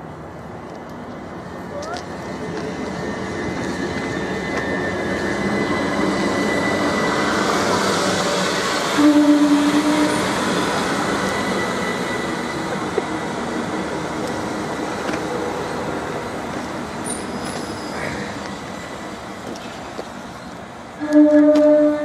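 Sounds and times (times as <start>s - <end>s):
train running on the line: 0.0s - 22.0s
single-pitched horn tone: 9.0s - 10.2s, 21.0s - 22.0s.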